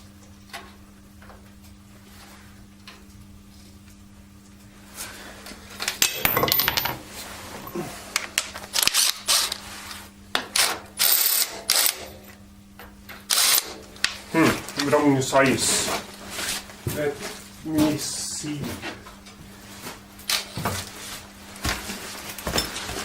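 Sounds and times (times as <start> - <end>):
faint steady hum: 0.0 - 23.0
metal tools clinking and scraping: 5.8 - 7.0.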